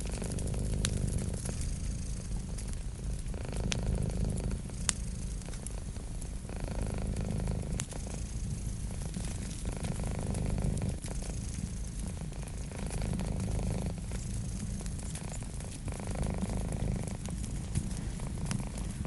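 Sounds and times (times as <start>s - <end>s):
cat purring: 0.0s - 19.0s
wood fire crackling: 0.0s - 19.0s.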